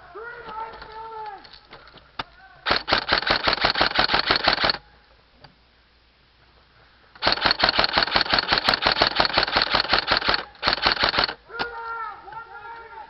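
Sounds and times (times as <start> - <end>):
airsoft rifle firing bursts: 2.7 - 4.8, 7.2 - 11.4.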